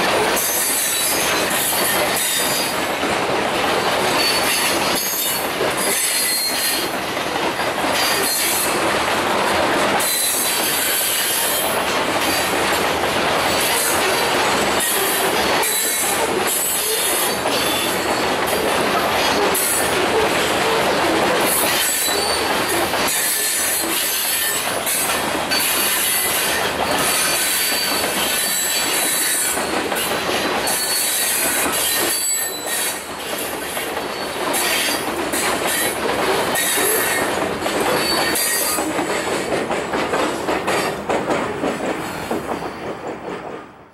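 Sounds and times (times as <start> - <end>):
freight train wheels clattering: 0.0 - 43.9
high wheel squeal: 4.2 - 7.0, 13.6 - 18.3, 21.5 - 29.7, 30.6 - 33.1.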